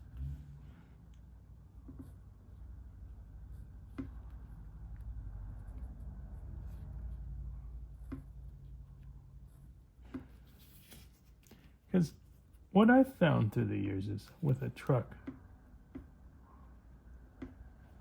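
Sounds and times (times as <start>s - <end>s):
pencil scratching on paper: 5.5s - 11.4s.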